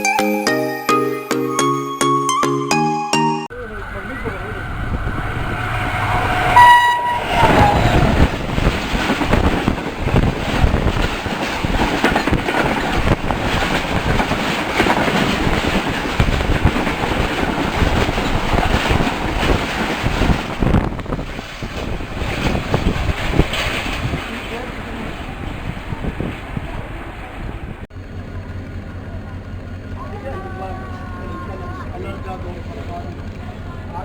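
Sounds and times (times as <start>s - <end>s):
train rumble: 3.5s - 34.0s
train horn: 4.6s - 8.4s
wheels clattering over rail joints: 7.2s - 34.0s.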